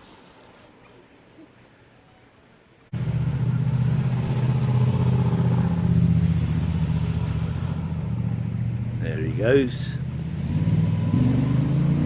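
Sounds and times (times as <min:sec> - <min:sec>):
vehicle engine humming: 0:02.8 - 0:12.0.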